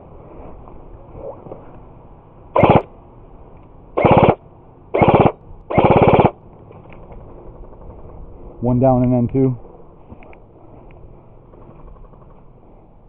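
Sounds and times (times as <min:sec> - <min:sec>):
airsoft gun full-auto bursts: 0:02.6 - 0:02.9, 0:04.0 - 0:04.4, 0:05.0 - 0:06.4.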